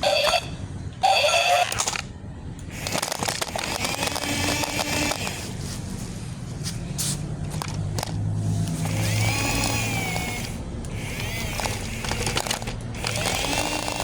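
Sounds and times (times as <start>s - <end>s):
sharp clicks of moving parts: 1.6s - 14.0s
toy motor hum: 2.7s - 5.8s, 7.5s - 14.0s
crackling and scraping: 2.7s - 14.0s.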